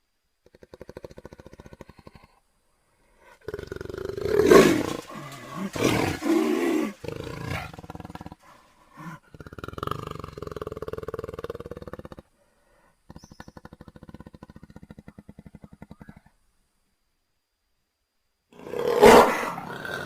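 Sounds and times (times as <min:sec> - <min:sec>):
jaguar rasping growl: 0:03.2 - 0:12.3
jaguar roaring: 0:03.4 - 0:12.1, 0:18.6 - 0:20.0.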